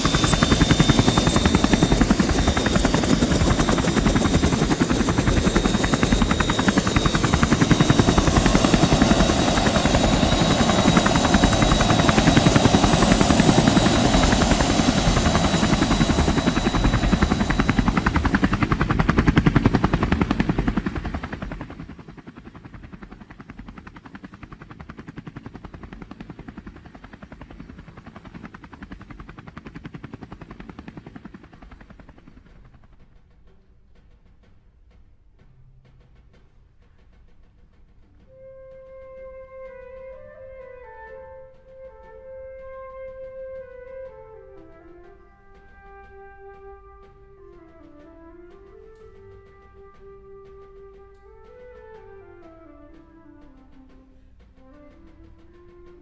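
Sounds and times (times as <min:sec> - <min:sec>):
drone propellers whining: 0:00.0 - 0:22.0.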